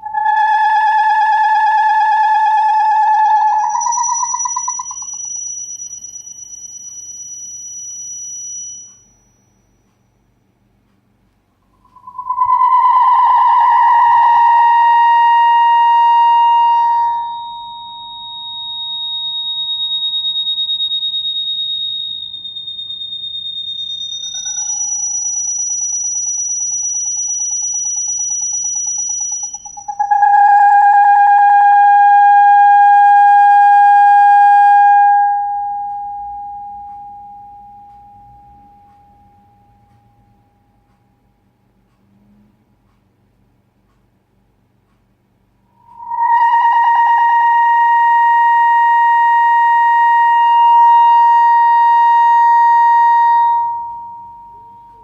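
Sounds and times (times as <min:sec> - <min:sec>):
wavering electronic tones: 0:00.0 - 0:09.7, 0:11.7 - 0:40.5
faint low hum: 0:29.4 - 0:55.0.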